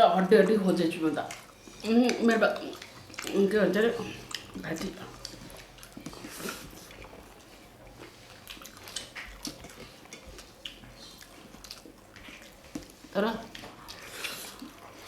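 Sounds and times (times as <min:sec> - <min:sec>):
people chewing food: 0:00.0 - 0:15.0
small sharp eating clicks: 0:00.4 - 0:07.2, 0:08.0 - 0:14.8.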